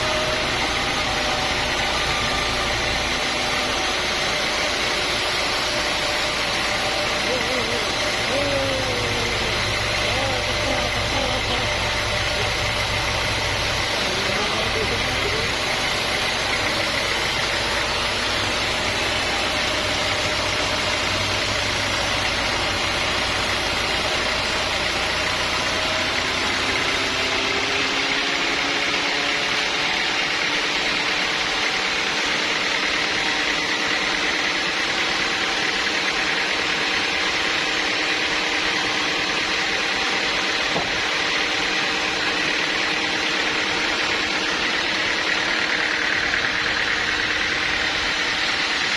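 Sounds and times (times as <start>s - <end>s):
sawmill machinery drone: 0.0s - 48.9s.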